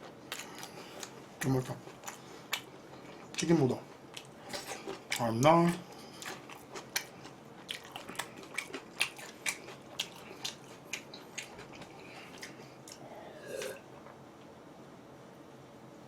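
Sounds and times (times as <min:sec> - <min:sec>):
chewing with moist mouth clicks: 0:00.0 - 0:14.2.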